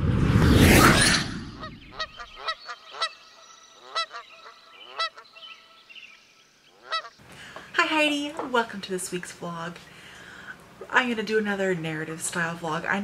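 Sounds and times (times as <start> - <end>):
loud whoosh: 0.0 - 2.2
short honking bird calls: 3.8 - 5.4, 6.8 - 7.2.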